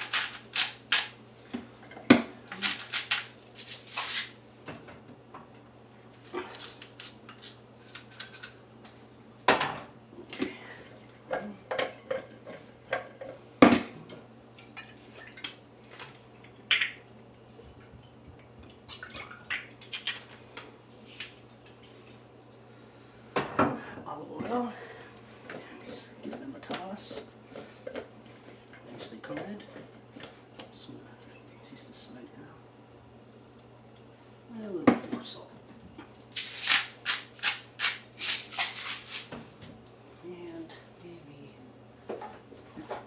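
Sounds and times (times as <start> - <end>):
dishes and utensils clinking: 7.8 - 9.6.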